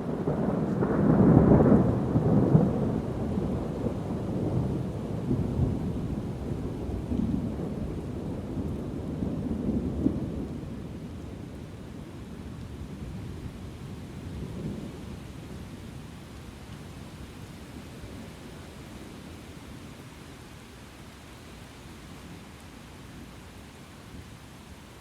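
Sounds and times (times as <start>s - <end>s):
rolling thunder: 0.0s - 16.1s
steady rain: 0.0s - 25.0s.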